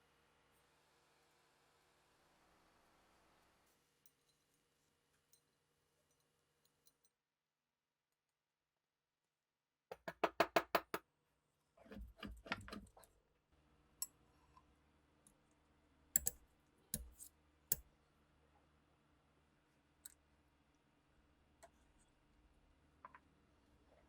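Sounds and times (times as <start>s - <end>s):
pistol parts clicking: 16.2s - 16.4s.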